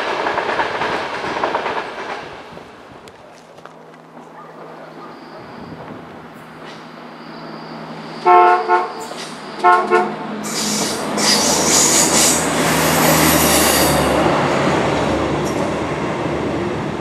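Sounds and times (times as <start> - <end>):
train wheels rushing past: 4.6 - 17.0
train horn short blasts: 8.2 - 12.4.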